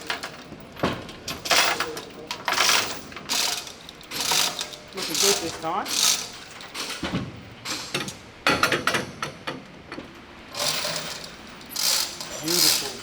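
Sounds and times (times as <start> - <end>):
ratchet spanner clicking: 10.6 - 13.0.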